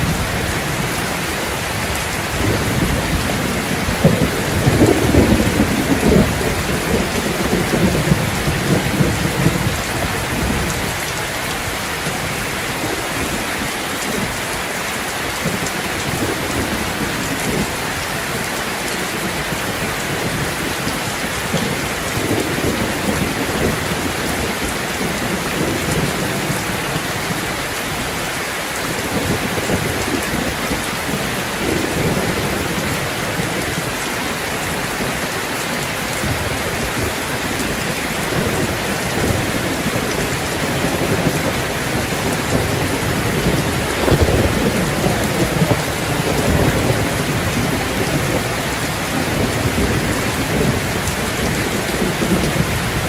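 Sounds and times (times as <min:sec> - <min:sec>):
thunder rolling: 0:00.0 - 0:11.2, 0:36.2 - 0:53.0
heavy rain falling: 0:00.0 - 0:53.0.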